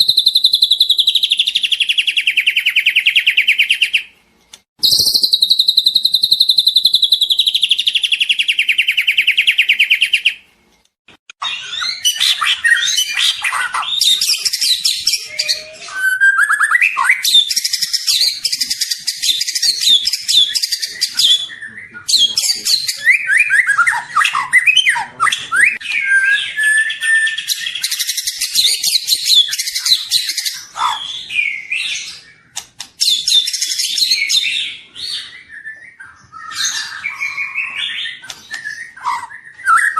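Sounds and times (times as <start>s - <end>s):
bird singing: 0.0s - 4.1s, 4.8s - 10.4s, 11.4s - 39.9s.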